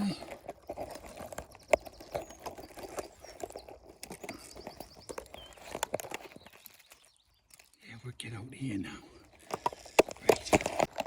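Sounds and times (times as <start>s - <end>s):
gorse stems rustling and snapping: 0.0s - 7.8s, 9.4s - 11.0s
faint bird trill: 0.2s - 7.8s.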